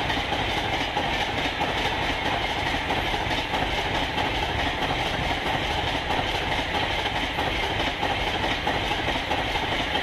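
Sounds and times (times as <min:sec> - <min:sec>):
train wheels rushing on rails: 0:00.0 - 0:10.0.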